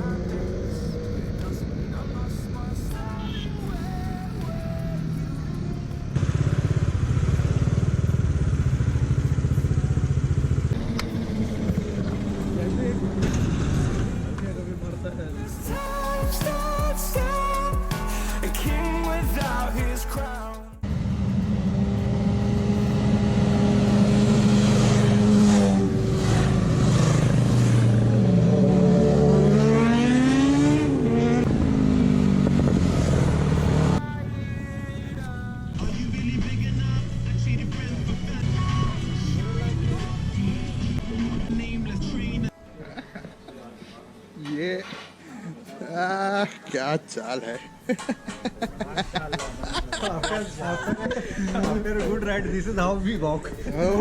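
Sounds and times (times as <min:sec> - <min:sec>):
motorcycle engine running: 0:02.8 - 0:14.3, 0:20.8 - 0:29.4.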